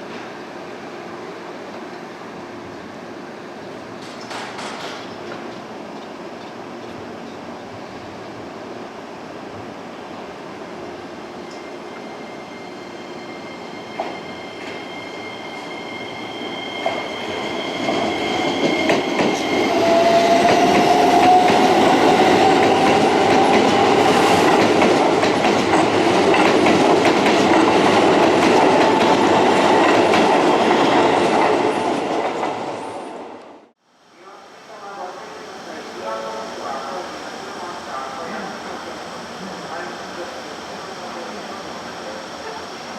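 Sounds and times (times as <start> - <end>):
train wheels clattering over rails: 4.0 - 5.4, 16.8 - 31.7.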